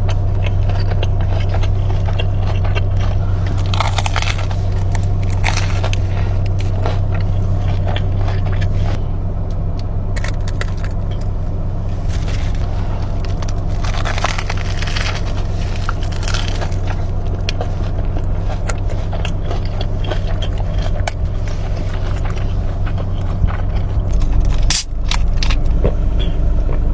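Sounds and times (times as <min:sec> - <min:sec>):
crunching and chewing: 0:00.0 - 0:26.9
steady low hum: 0:00.0 - 0:26.9.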